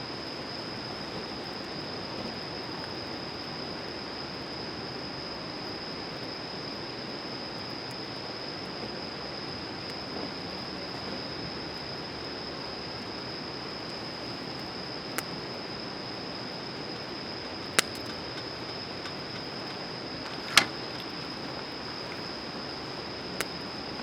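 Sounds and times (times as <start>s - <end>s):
faint crackles: 13.8s - 24.0s.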